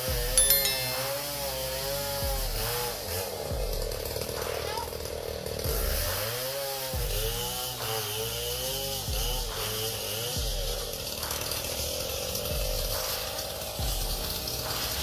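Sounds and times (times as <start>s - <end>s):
chainsaw cutting: 5.0s - 13.8s.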